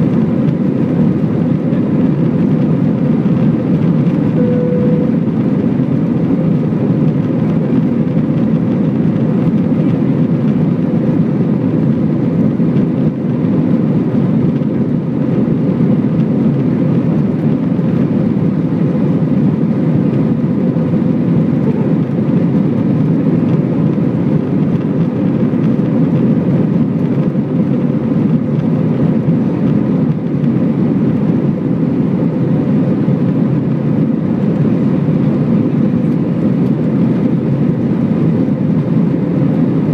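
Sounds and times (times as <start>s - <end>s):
faint constant hum: 0.0s - 7.5s
jet engines rumbling: 0.0s - 39.9s.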